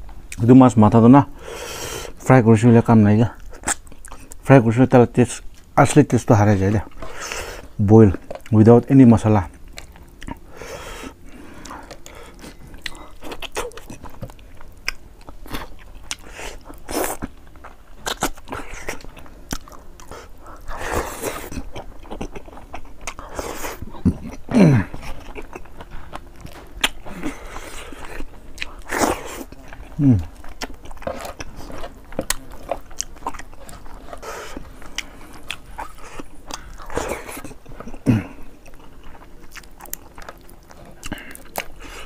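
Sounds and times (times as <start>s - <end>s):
wet chewing with clicks: 3.4s - 4.5s, 8.1s - 8.6s, 9.4s - 10.5s, 11.6s - 42.0s.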